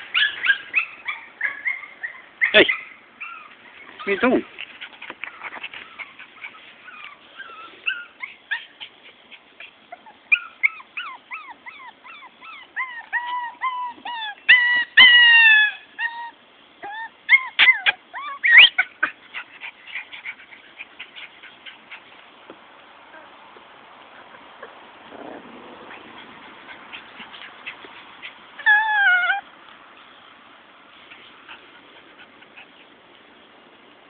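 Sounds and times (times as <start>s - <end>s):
puppy whimpering and yipping: 0.1s - 4.4s, 5.2s - 8.9s, 9.6s - 22.1s, 24.2s - 29.5s
puppy whining: 0.1s - 22.0s, 24.1s - 29.5s.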